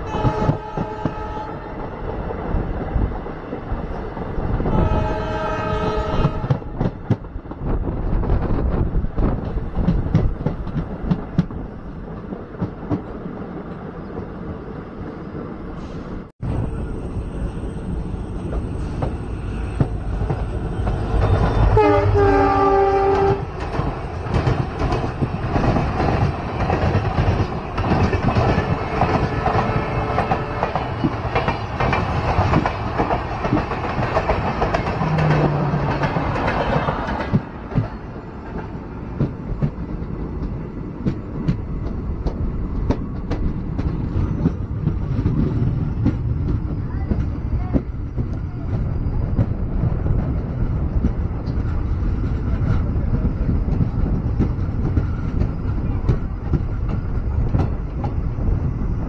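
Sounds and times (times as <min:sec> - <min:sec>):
train horn: 0:00.0 - 0:01.8, 0:04.7 - 0:06.8, 0:21.2 - 0:23.5, 0:28.4 - 0:31.0
train running on rails: 0:00.0 - 0:59.0.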